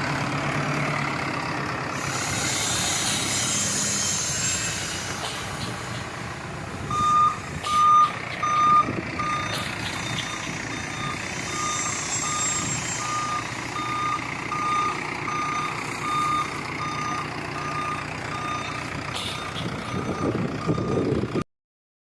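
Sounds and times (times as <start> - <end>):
diesel engine running: 0.0 - 21.4
reversing alarm beeping: 6.9 - 21.4.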